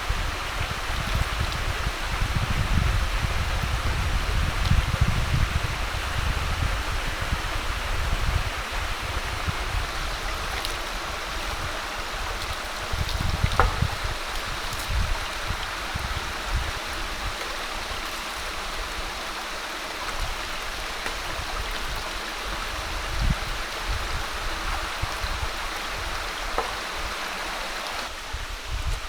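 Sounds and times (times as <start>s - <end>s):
running water rushing: 0.0s - 29.0s
low bumps: 12.9s - 16.2s.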